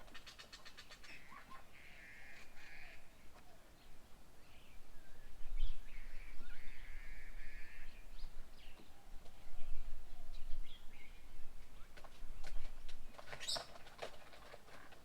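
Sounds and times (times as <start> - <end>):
small birds chirping: 7.6 - 14.6.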